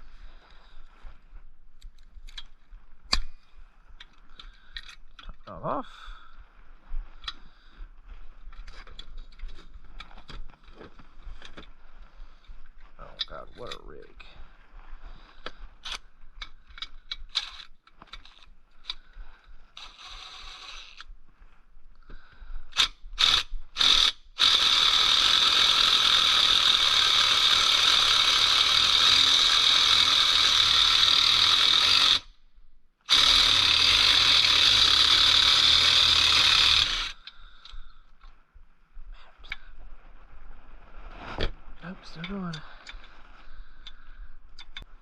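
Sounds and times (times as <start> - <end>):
ratchet wrench clicking: 16.7 - 19.0, 19.8 - 21.1, 22.8 - 32.3, 33.1 - 37.4.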